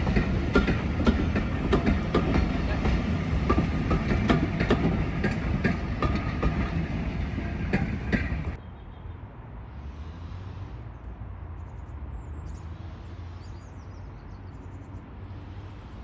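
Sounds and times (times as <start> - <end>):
train rumbling past: 0.0 - 8.6
wheels clicking on rail joints: 0.0 - 8.6.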